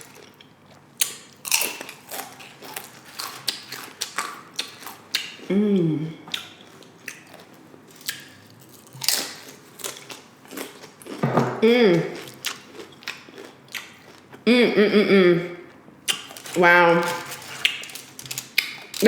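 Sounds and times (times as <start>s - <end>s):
nachos crunching when chewed: 0.0s - 5.5s, 6.3s - 11.2s, 12.1s - 14.5s, 15.6s - 19.0s
person humming mm: 5.5s - 6.2s.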